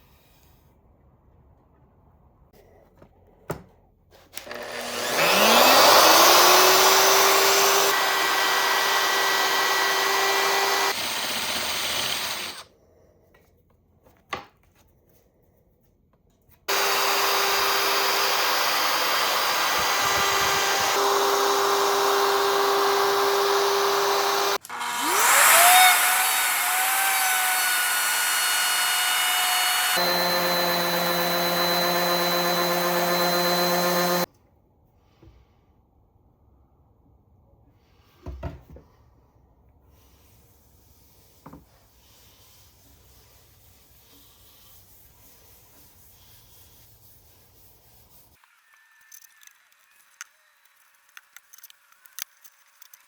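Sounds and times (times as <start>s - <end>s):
power tool motor whining: 4.4s - 12.6s, 16.7s - 34.3s.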